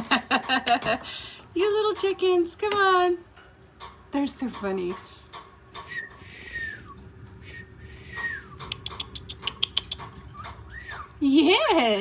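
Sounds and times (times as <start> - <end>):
parrot whistles: 5.9 - 11.2.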